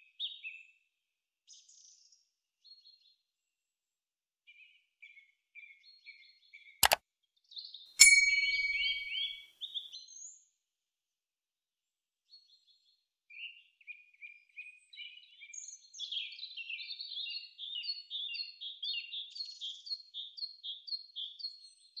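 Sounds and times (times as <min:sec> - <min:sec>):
high chirping: 0:08.0 - 0:09.4.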